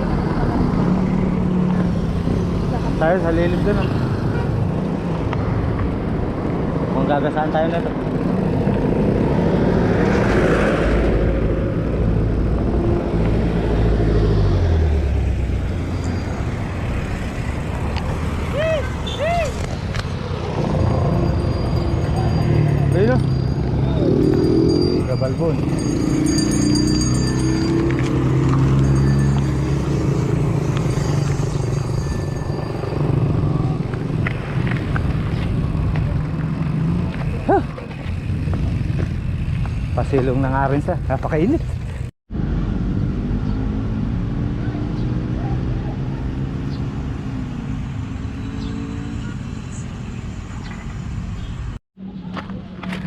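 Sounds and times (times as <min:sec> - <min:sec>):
road noise: 0:00.0 - 0:53.0
vehicle engine rumbling: 0:00.0 - 0:53.0.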